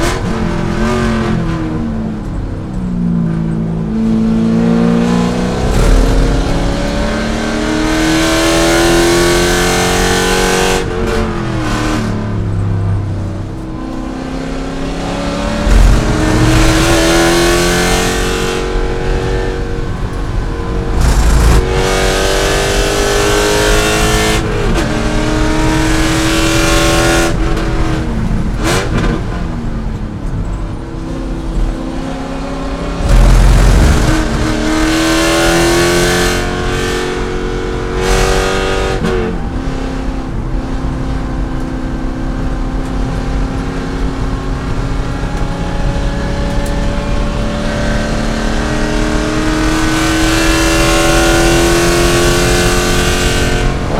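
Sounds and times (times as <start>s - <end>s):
car engine accelerating hard: 0.0s - 53.9s
heavy low rumbles: 5.2s - 9.2s, 15.1s - 23.6s, 32.8s - 35.5s.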